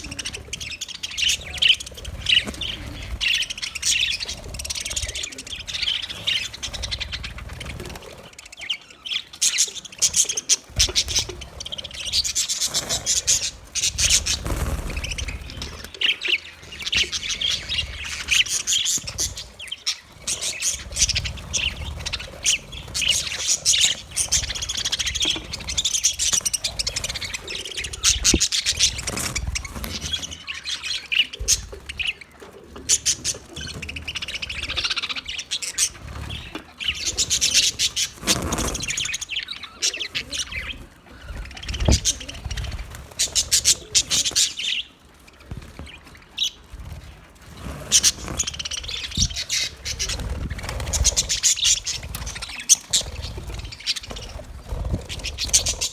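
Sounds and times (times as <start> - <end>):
budgerigars chattering and warbling: 0.0 - 55.9.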